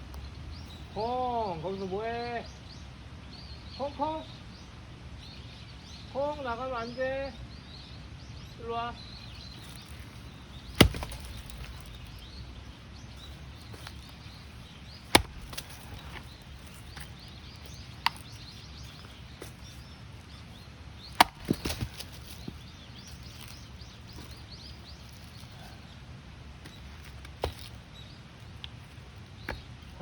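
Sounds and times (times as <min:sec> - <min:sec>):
small knocks: 0:09.6 - 0:12.6, 0:15.0 - 0:19.6
axe chopping wood: 0:09.6 - 0:19.8, 0:21.0 - 0:25.2, 0:26.6 - 0:27.8.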